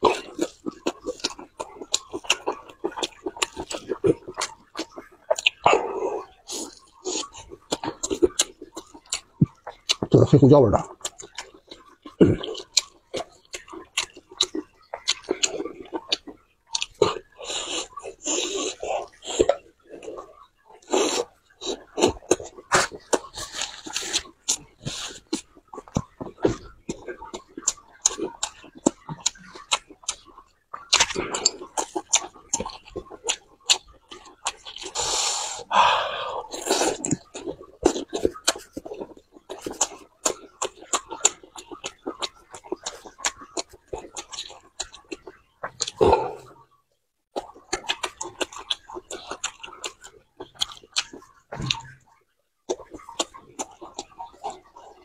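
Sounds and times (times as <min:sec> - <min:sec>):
person chewing: 0:00.0 - 0:46.6, 0:47.3 - 0:55.0
slurp or breath: 0:35.0 - 0:37.0
wet mouth clicks: 0:36.4 - 0:46.6.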